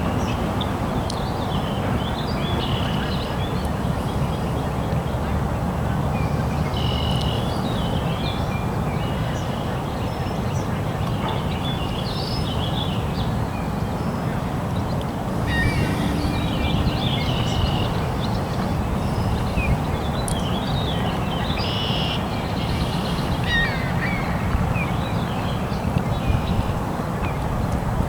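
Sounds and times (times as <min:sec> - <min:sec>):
steady low rumble: 0:15.2 - 0:20.2
birds chirping and twittering: 0:15.3 - 0:20.6.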